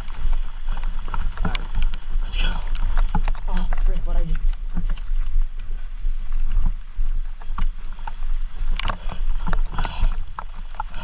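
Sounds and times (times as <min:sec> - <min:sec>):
bike rattles and knocks: 0:00.0 - 0:11.0
wind rumble on microphone: 0:00.0 - 0:11.0.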